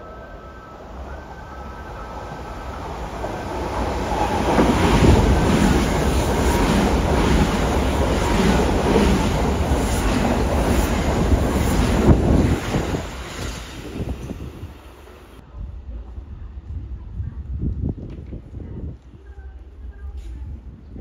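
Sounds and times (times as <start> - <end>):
train wheels rumbling: 0.0 - 15.4.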